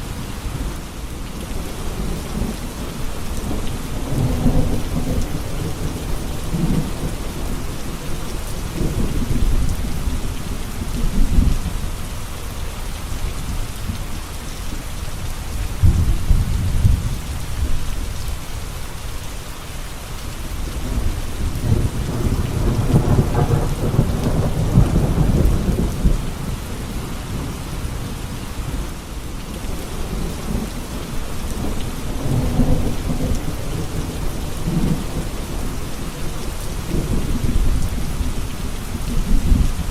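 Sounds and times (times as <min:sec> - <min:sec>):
heavy rain hissing: 0:00.0 - 0:39.9
rolling thunder: 0:01.9 - 0:11.7, 0:15.8 - 0:17.8, 0:20.8 - 0:28.1, 0:29.6 - 0:39.9.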